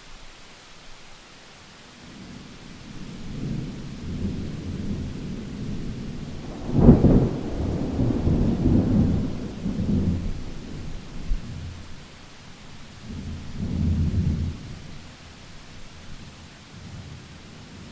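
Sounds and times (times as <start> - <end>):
steady rain: 0.0 - 17.9
thunder rumbling: 2.8 - 12.1.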